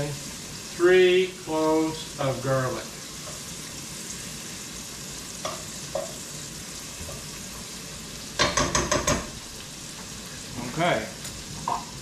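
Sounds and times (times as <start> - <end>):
onions sizzling in a pan: 0.0 - 12.0
utensil clicking against pan: 8.4 - 9.3.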